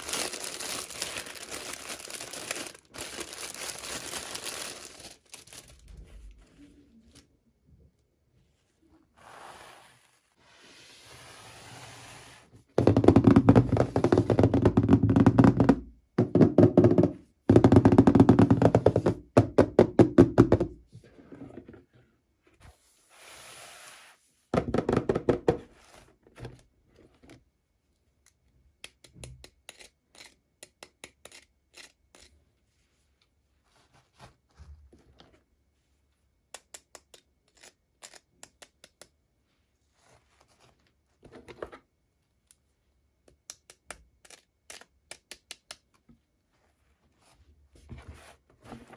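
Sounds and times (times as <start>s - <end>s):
plastic parts knocking and rattling: 12.8s - 20.8s, 24.6s - 25.6s.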